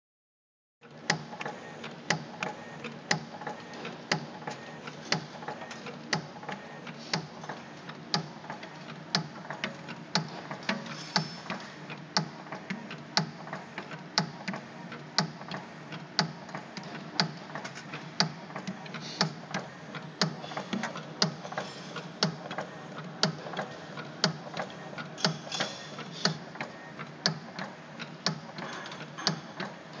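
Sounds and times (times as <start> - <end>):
light machine clicks: 8.1 - 14.6, 16.2 - 29.8.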